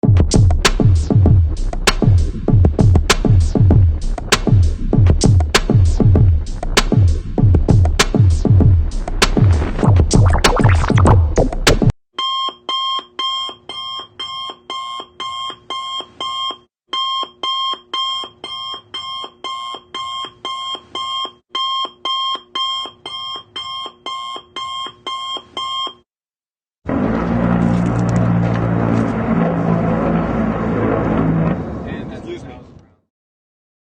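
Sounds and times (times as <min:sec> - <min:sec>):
music with heavy beat: 0:00.0 - 0:11.9
electronic alarm beeping: 0:12.2 - 0:26.0.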